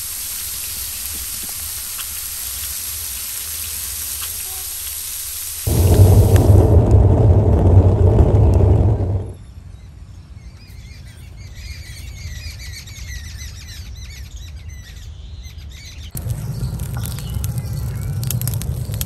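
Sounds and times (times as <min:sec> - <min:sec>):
deep outdoor rumble: 0:05.7 - 0:09.4, 0:16.2 - 0:19.0
low steady rumble: 0:05.7 - 0:09.4, 0:16.2 - 0:19.0.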